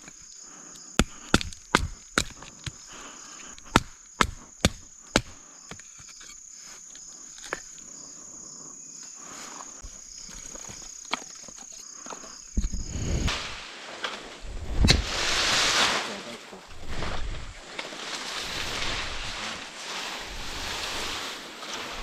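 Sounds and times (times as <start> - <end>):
sharp chopping strikes on wood: 1.0 - 2.8, 3.6 - 5.4
loud rustling: 13.3 - 22.0.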